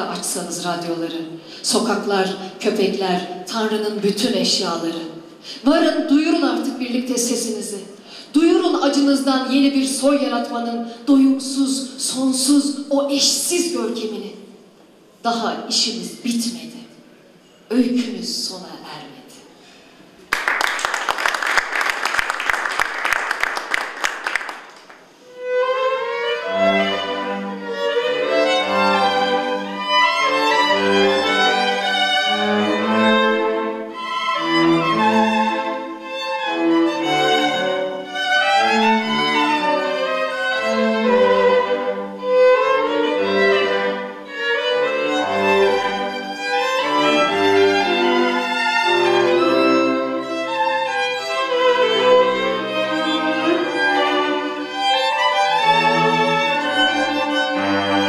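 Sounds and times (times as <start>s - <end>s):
applause: 20.3s - 25.2s
violin melody: 24.3s - 58.0s
low cello notes: 25.2s - 58.0s.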